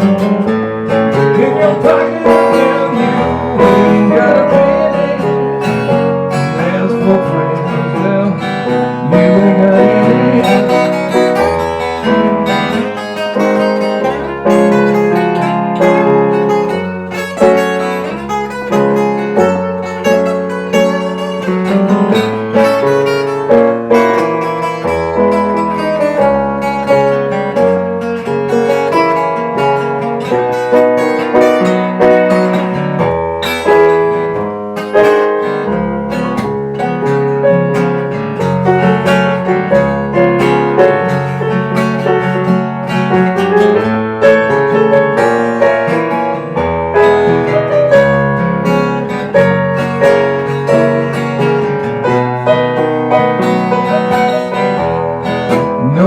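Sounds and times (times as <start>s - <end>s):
plucked acoustic guitar: 0.0s - 56.0s
low bass line: 55.6s - 56.0s.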